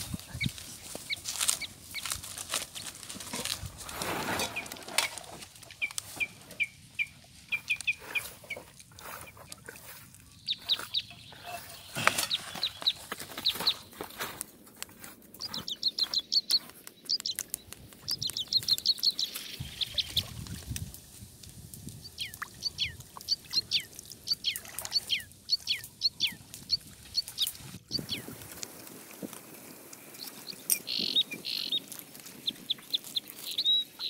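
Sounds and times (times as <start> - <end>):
birds chirping: 4.0 - 14.3, 15.2 - 20.4, 22.0 - 28.5, 30.0 - 34.0.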